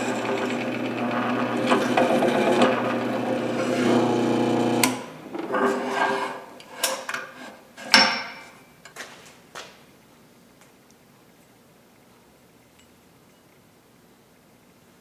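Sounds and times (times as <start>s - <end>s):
power tool grinding metal: 0.0s - 6.3s.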